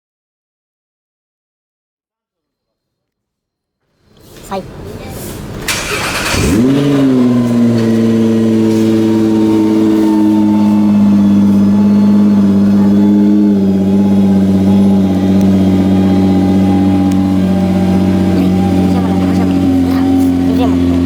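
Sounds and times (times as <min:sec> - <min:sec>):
car engine idling: 0:04.4 - 0:21.0.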